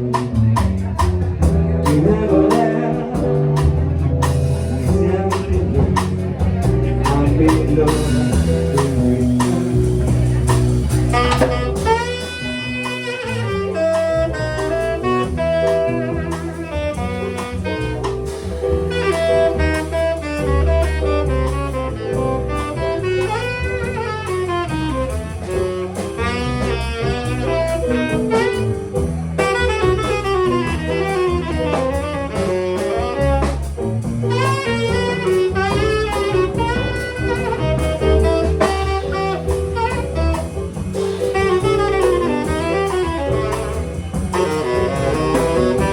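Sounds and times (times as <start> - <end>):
bass: 0.0 - 45.9
drum kit: 0.0 - 45.9
saxophone solo: 1.4 - 45.9.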